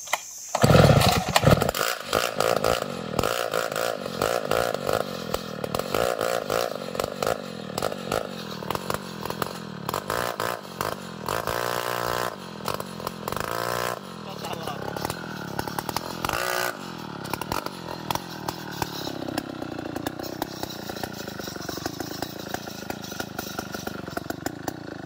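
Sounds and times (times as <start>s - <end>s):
chainsaw cutting wood: 0.0s - 25.0s
rattling clicks: 17.0s - 24.8s.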